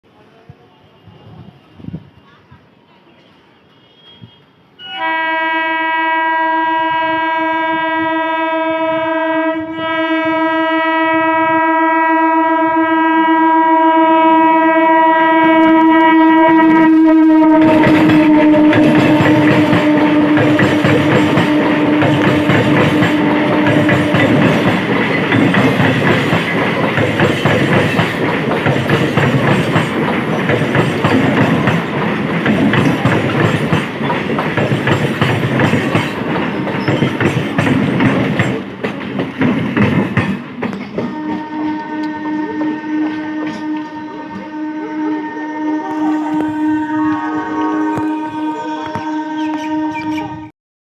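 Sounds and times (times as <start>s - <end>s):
train horn blast: 3.6s - 28.4s, 41.0s - 50.5s
train wheels clattering over rail joints: 17.6s - 42.1s.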